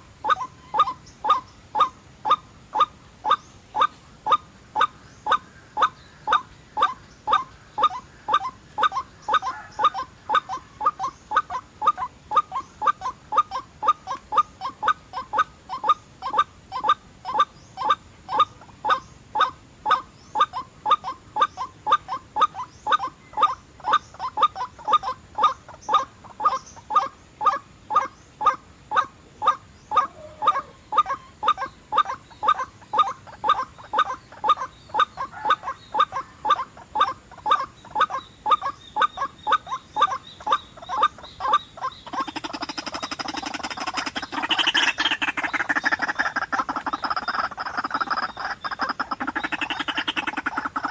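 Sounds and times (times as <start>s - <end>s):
waterhen calling: 0.0s - 50.9s.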